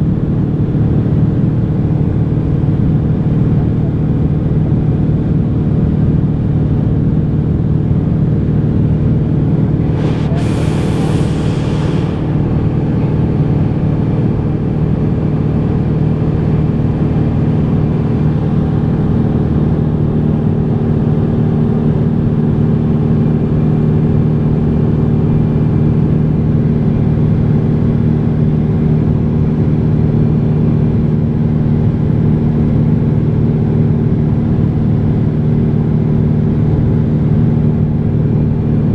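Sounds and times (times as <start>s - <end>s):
propeller aircraft engine droning: 0.0s - 38.9s
brief hiss: 9.8s - 13.1s.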